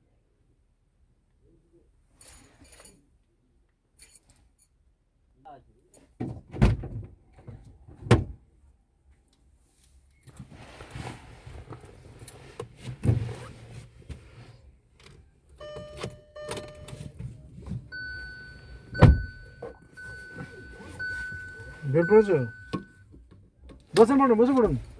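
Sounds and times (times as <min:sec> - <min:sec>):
electronic chime tone: 0:15.6 - 0:17.0, 0:18.0 - 0:23.0
car doors thudding shut: 0:15.6 - 0:22.9
shuffling movement: 0:15.7 - 0:23.0, 0:23.8 - 0:24.9.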